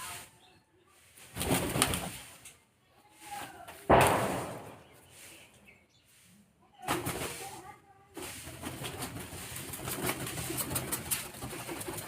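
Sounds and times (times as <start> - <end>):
birds rustling bursts: 1.0 - 2.4, 8.2 - 12.0.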